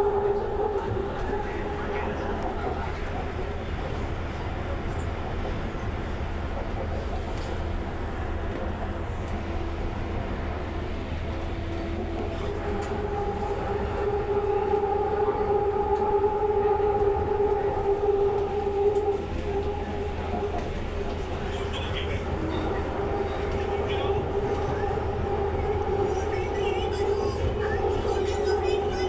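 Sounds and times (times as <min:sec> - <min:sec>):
train rumble inside carriage: 0:00.0 - 0:29.0
two-note hum: 0:12.0 - 0:21.2.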